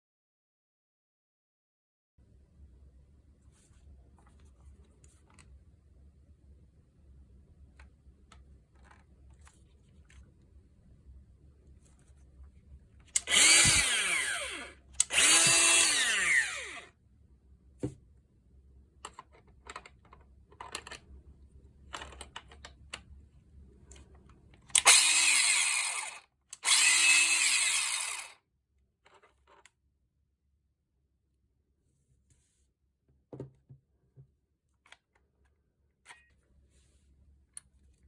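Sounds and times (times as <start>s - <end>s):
disc grinder spinning up: 13.2s - 16.9s, 24.8s - 28.4s.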